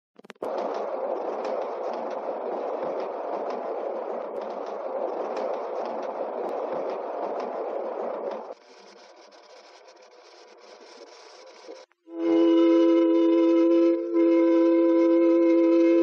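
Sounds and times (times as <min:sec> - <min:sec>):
miniature train rumbling clatter: 0:00.4 - 0:11.9.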